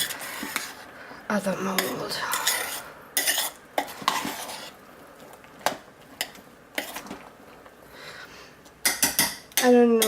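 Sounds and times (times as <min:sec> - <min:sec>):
utensil scraping a pot: 0:00.0 - 0:00.9, 0:01.6 - 0:04.8, 0:06.2 - 0:07.2.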